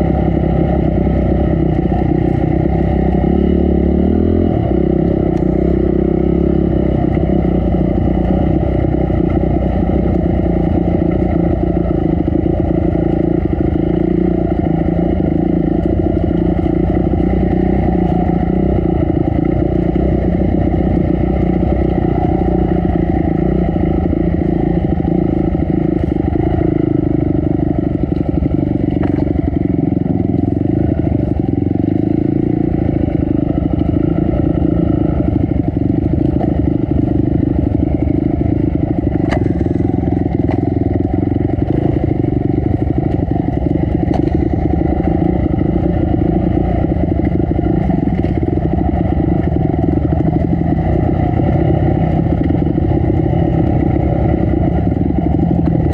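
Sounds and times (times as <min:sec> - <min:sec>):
dirt bike engine running: 0:00.0 - 0:55.9
sharp clicks and clatter: 0:38.1 - 0:51.4.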